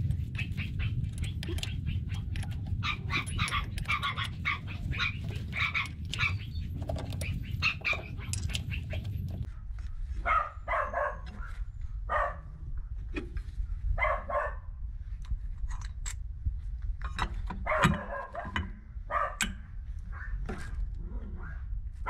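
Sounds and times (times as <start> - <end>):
steady low hum: 0.0 - 22.0
dog barking: 2.8 - 6.4, 10.2 - 11.5, 12.1 - 12.5, 14.0 - 14.7, 17.6 - 19.4.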